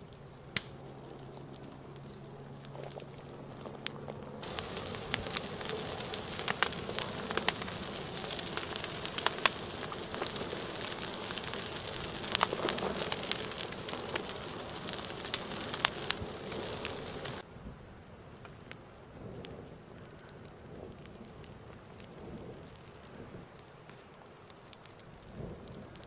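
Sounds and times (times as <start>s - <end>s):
lava crackling and popping: 0.0s - 26.0s
steady hiss: 4.4s - 17.4s.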